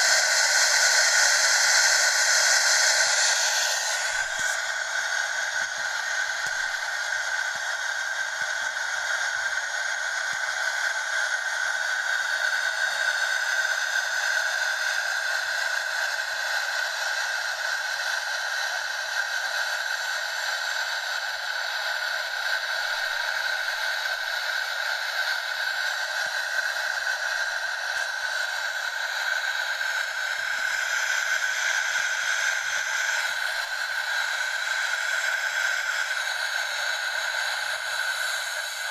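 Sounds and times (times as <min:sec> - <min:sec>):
car wash spray hiss: 0:00.0 - 0:07.6.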